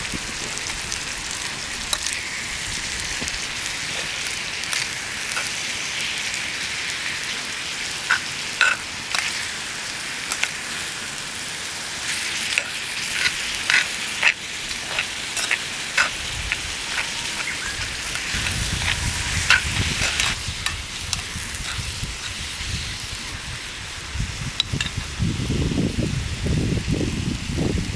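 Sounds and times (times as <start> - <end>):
food sizzling and popping in pan: 0.0 - 27.9.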